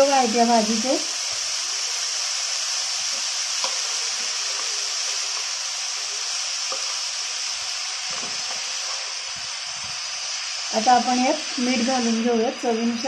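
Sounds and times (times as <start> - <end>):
vegetables sizzling in oil: 0.0 - 13.0
spatula scraping and tapping pan: 3.1 - 5.5, 6.7 - 7.0.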